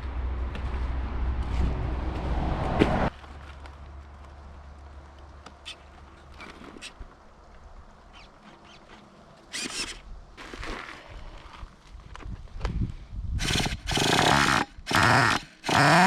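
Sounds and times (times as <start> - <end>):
rc engine running at low revs: 9.5 - 10.0, 13.4 - 16.0.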